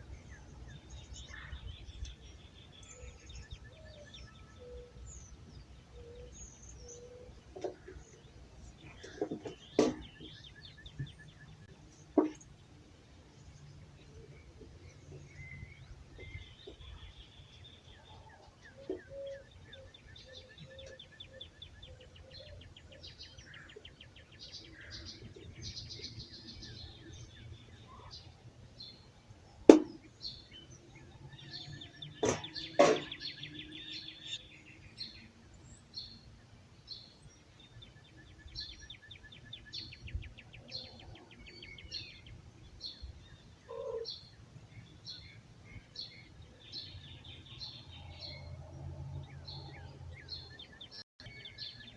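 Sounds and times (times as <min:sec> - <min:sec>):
songbirds singing: 0:00.0 - 0:51.9.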